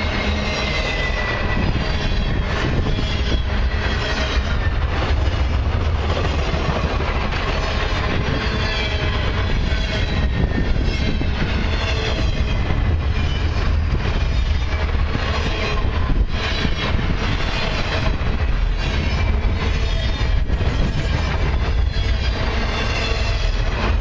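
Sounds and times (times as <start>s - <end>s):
wheel squeal: 0.0s - 4.9s
train wheels rumbling on rail: 0.0s - 24.0s.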